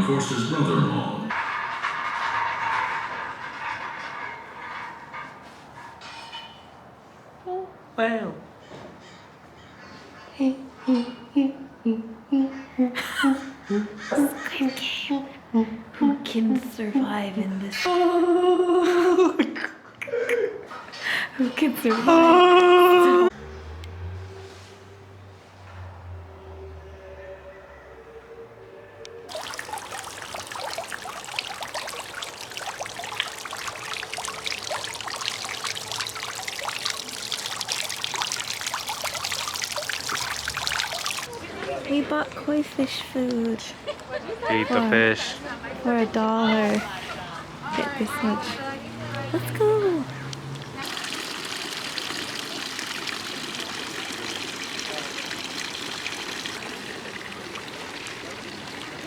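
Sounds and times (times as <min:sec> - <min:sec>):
water splashing and trickling: 0:29.3 - 0:42.0, 0:46.6 - 0:59.0.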